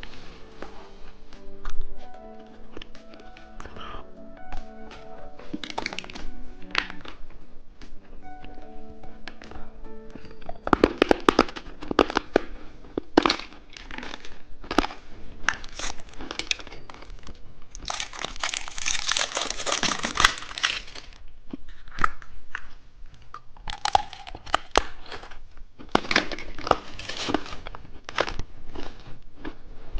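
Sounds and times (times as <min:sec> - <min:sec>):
plastic packaging crinkling: 0:05.0 - 0:07.2, 0:10.2 - 0:22.3, 0:23.6 - 0:29.2.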